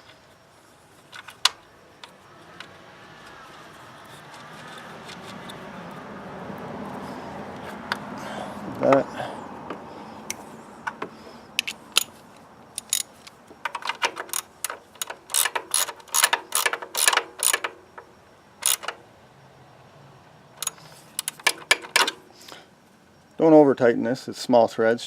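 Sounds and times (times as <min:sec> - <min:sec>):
socket ratchet clicking: 0:12.8 - 0:18.0, 0:18.6 - 0:19.0, 0:20.6 - 0:22.2.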